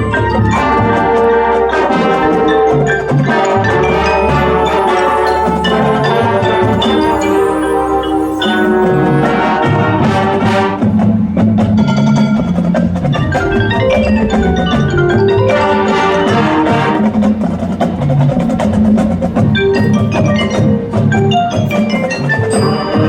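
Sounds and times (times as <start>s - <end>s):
mallet percussion runs: 0.0s - 23.0s
marching band playing: 0.0s - 23.0s.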